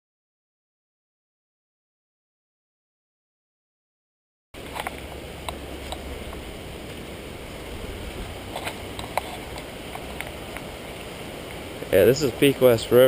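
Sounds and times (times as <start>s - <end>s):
river rushing: 4.6s - 13.0s
low rumble: 4.9s - 9.1s.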